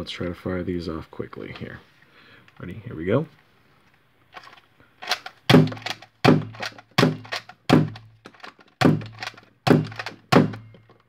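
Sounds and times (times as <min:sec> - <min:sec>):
hammer cocking click: 0:05.0 - 0:10.6
toy blaster plunger thunks: 0:05.0 - 0:10.8.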